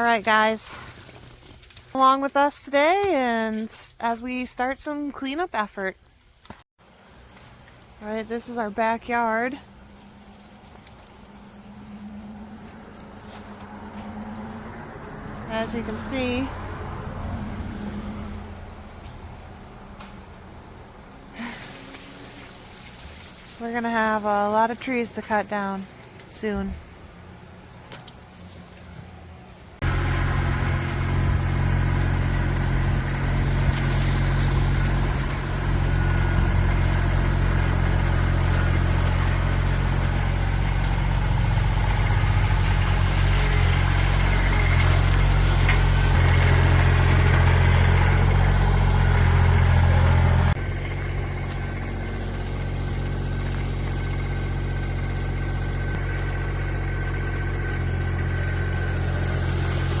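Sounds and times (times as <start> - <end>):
engine running steadily: 6.8 - 60.0.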